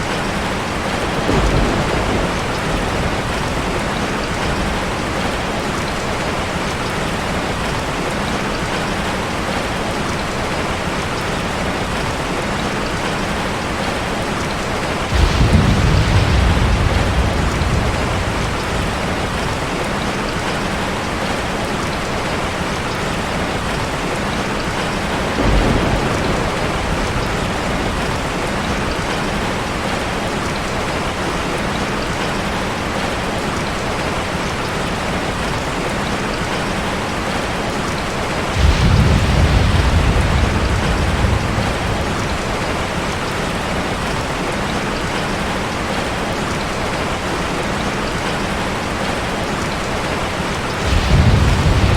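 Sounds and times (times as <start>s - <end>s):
waterfall rushing: 14.2s - 51.9s.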